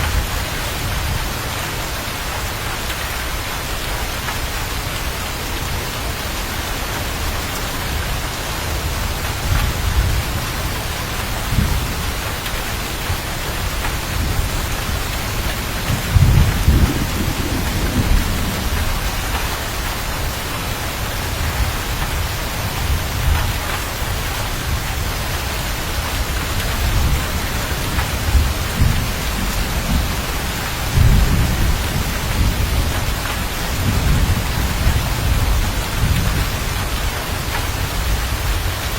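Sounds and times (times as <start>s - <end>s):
heavy rain hissing: 0.0s - 38.9s
low rolls of thunder: 13.8s - 23.8s, 26.3s - 38.8s.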